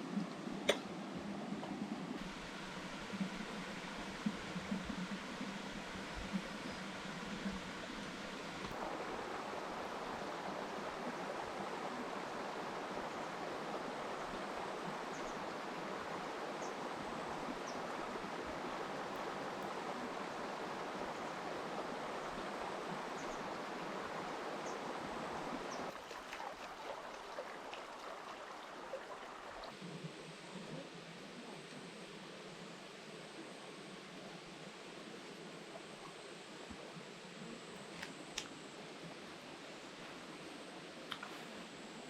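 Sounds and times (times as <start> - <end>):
river water rushing: 2.2 - 29.8.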